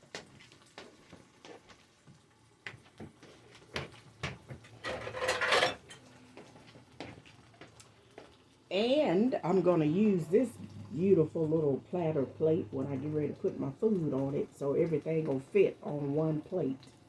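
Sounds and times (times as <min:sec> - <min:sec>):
dishes and utensils clinking: 0:04.6 - 0:06.1.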